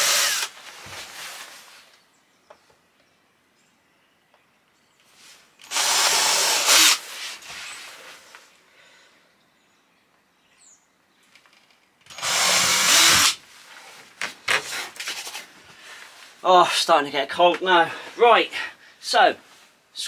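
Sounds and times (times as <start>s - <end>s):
cordless drill boring through wood: 0.0s - 0.6s, 5.6s - 7.1s, 12.1s - 13.4s.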